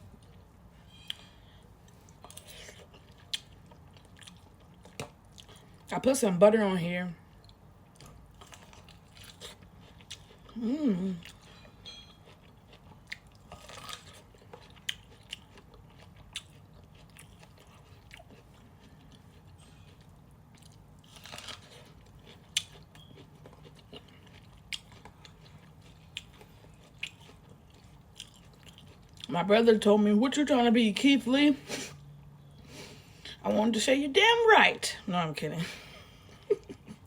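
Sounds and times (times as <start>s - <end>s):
person chewing food: 0.0s - 5.9s, 7.3s - 29.3s
person humming: 10.6s - 11.2s.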